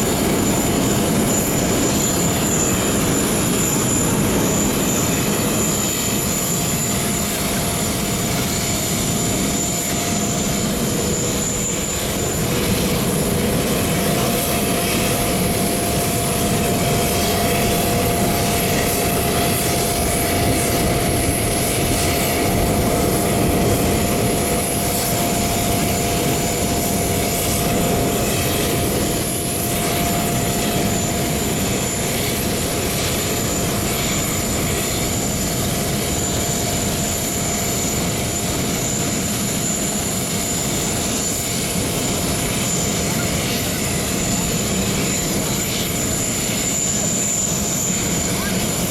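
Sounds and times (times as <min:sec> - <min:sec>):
propellers whirring in flight: 0:00.0 - 0:48.9.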